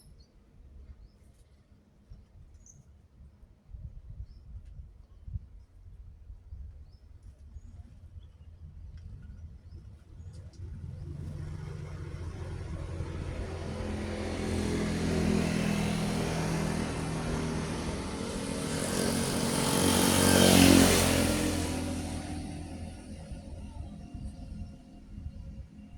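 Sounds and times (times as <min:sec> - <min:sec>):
truck engine passing: 0:10.6 - 0:24.8.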